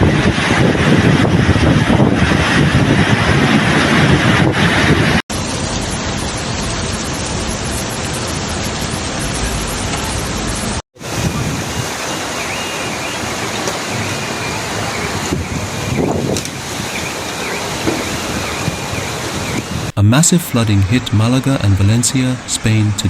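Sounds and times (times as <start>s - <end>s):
heavy rain: 0.0s - 23.0s
rushing floodwater: 0.0s - 23.0s.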